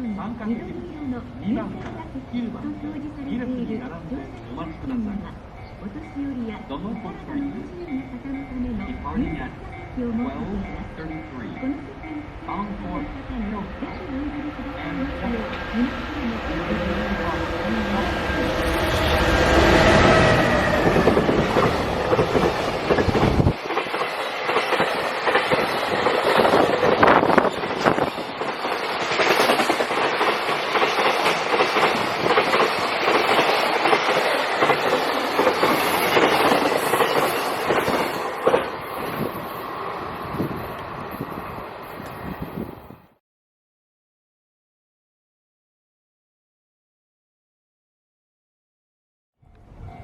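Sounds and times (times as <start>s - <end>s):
locomotive rumble: 1.0s - 42.6s
train wheels clickety-clack: 16.8s - 39.6s.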